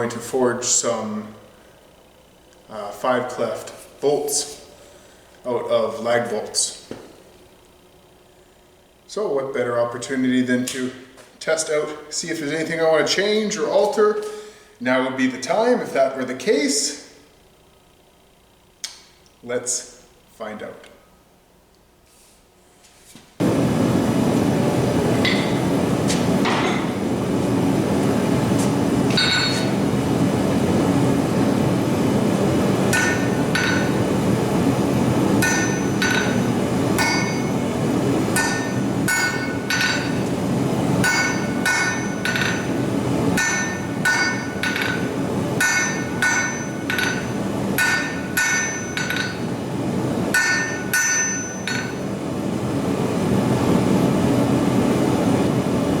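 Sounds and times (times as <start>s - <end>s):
steady low hum: 0.0s - 56.0s
hammer striking steel on anvil: 25.2s - 25.7s, 29.1s - 29.8s, 32.9s - 34.1s, 35.4s - 37.7s, 38.4s - 40.2s, 41.0s - 42.8s, 43.4s - 49.5s, 50.3s - 52.0s.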